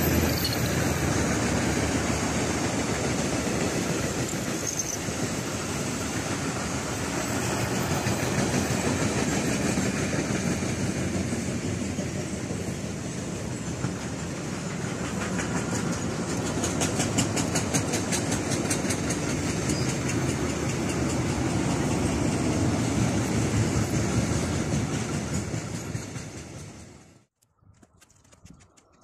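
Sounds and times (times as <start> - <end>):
train wheels rumbling on rail: 0.0 - 27.4
rhythmic clatter of wheelsets: 13.6 - 22.5.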